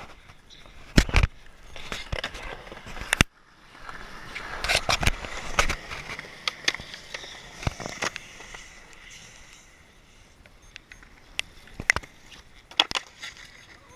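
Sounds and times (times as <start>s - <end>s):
skateboard wheels rolling on wet pavement: 2.4s - 8.9s.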